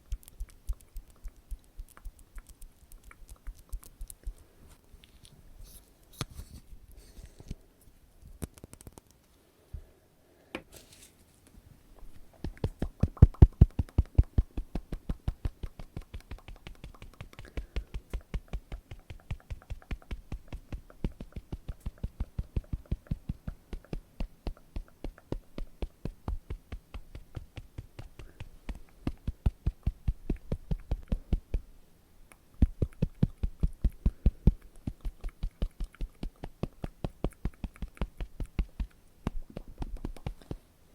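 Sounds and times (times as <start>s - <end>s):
fast fingertip tapping: 0.0s - 4.5s, 12.0s - 31.7s, 32.3s - 40.6s.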